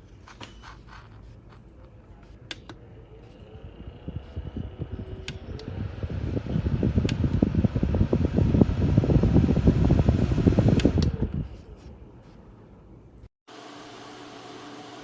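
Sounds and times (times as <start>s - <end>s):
fan blowing on microphone: 2.2s - 12.4s.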